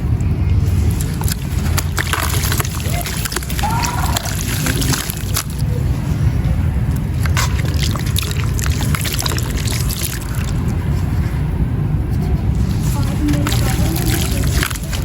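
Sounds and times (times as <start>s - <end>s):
low rumble: 0.0s - 15.0s
wet sand crumbling into water: 0.5s - 5.7s, 7.0s - 11.0s, 12.5s - 15.0s.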